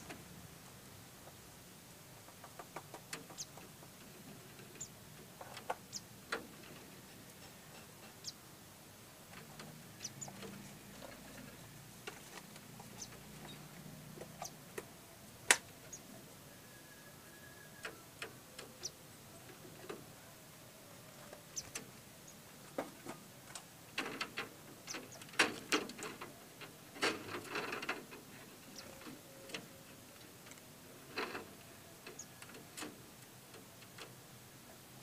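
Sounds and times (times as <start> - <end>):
bird chirps: 10.0 - 10.5, 12.8 - 13.7.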